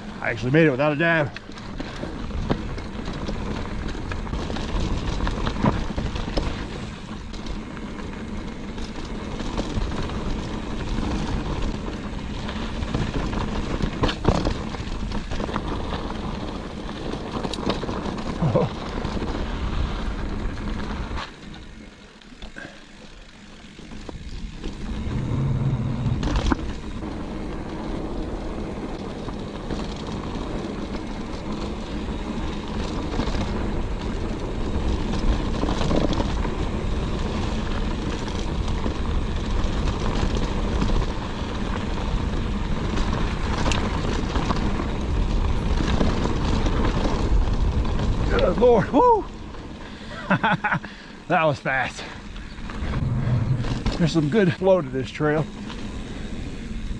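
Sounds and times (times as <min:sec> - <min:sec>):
bike rattling: 0:00.0 - 0:56.9
tyres on dirt and rock: 0:00.0 - 0:56.9
wind on microphone: 0:24.8 - 0:26.8, 0:52.4 - 0:54.4.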